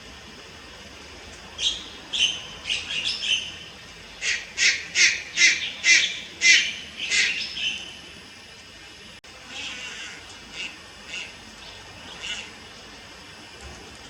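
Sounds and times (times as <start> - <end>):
heron rasping calls: 4.2 - 7.9, 9.5 - 12.6.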